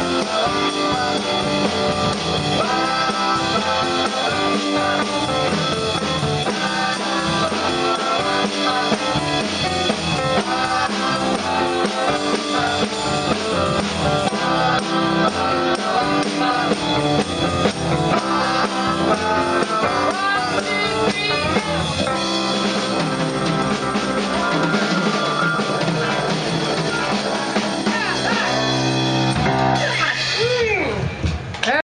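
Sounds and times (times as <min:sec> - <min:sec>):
person singing: 0:00.0 - 0:28.9
drum kit: 0:00.0 - 0:31.8
electric guitar: 0:00.0 - 0:31.8.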